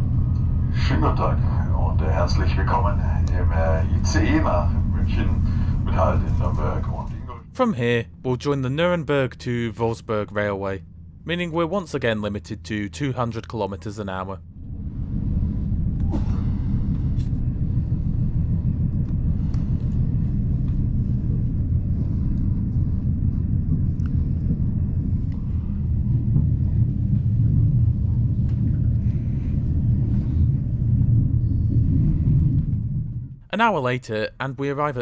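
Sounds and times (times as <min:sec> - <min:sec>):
train rumble inside coach: 0:00.0 - 0:33.6
faint clicks: 0:23.9 - 0:24.2.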